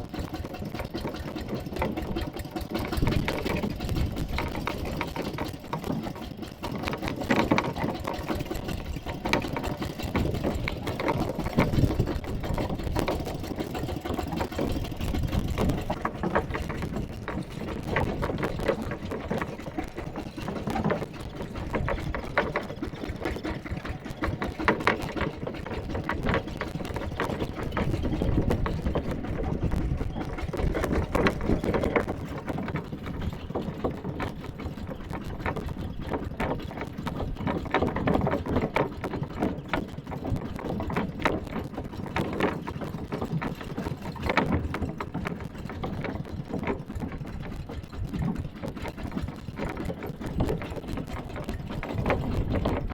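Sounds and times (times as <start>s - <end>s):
tractor engine chugging: 0.0s - 41.5s
tractor body and load clattering: 0.0s - 52.9s.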